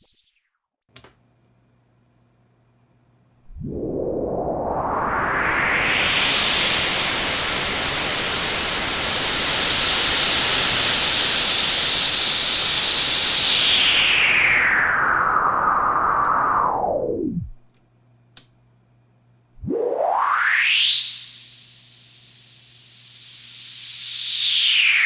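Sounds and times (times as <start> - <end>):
faint hum: 1.1 - 24.0
filtered white noise sweeping: 3.4 - 17.7, 19.6 - 25.0.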